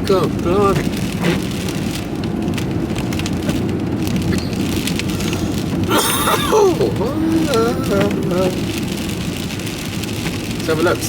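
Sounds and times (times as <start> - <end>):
car engine rumble: 0.0 - 11.0
rain pattering on car roof: 0.0 - 11.0
road noise: 0.0 - 11.0.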